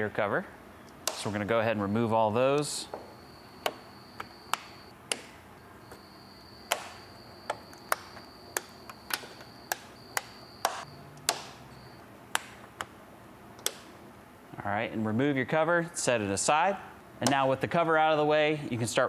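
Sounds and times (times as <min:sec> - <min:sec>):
cricket trilling: 0:02.4 - 0:04.9, 0:05.6 - 0:12.0.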